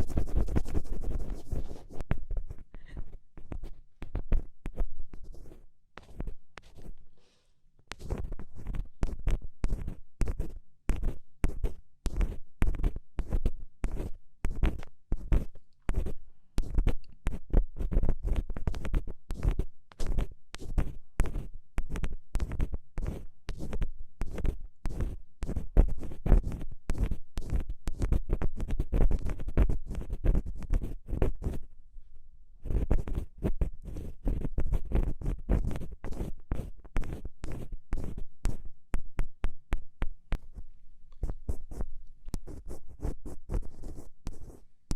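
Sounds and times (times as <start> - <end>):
ear pick scratching: 0.0 - 7.0, 7.9 - 13.3, 32.6 - 40.6.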